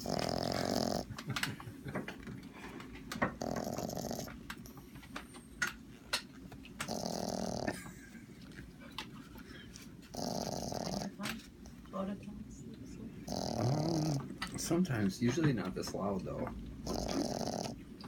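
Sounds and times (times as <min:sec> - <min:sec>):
small dog snoring: 0:00.0 - 0:01.2, 0:03.3 - 0:04.9, 0:06.8 - 0:07.9, 0:10.1 - 0:11.2, 0:13.2 - 0:14.3, 0:16.8 - 0:17.8.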